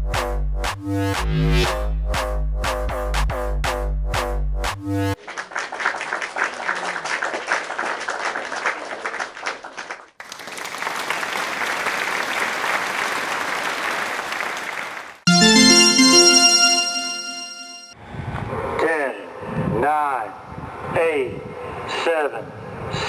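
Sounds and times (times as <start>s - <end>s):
audience applauding: 5.2s - 17.2s
music: 15.3s - 18.0s.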